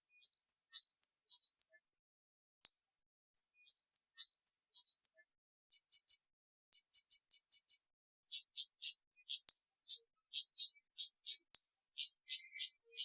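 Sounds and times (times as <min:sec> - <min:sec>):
bird chirping sharply: 0:03.6 - 0:05.2, 0:08.3 - 0:13.0.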